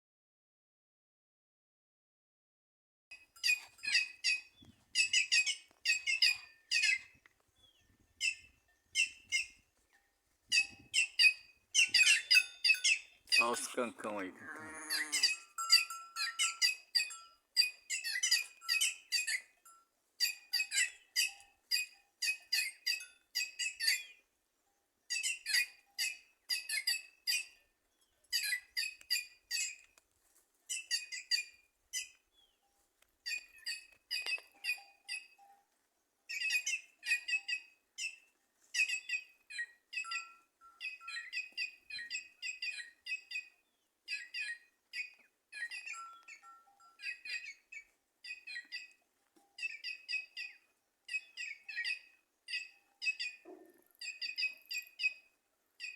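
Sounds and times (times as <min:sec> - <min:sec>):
jays calling: 0:11.8 - 0:15.4.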